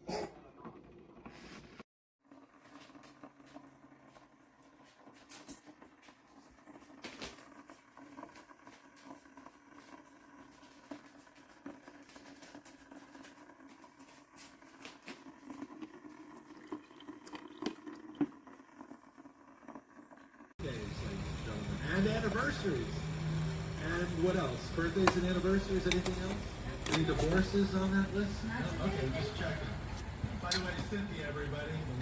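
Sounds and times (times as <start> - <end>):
crackling and ticks of heating water: 2.2 - 28.6
steady low hum: 20.6 - 32.0.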